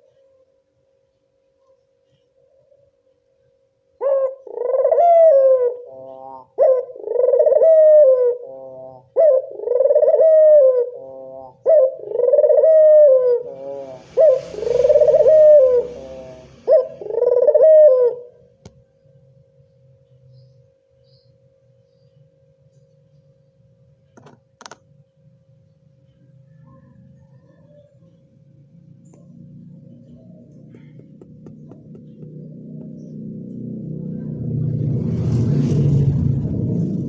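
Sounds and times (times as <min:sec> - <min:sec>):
faint steady hum: 0:00.0 - 0:35.0
dove cooing: 0:04.0 - 0:18.5, 0:26.4 - 0:28.2, 0:29.2 - 0:35.1.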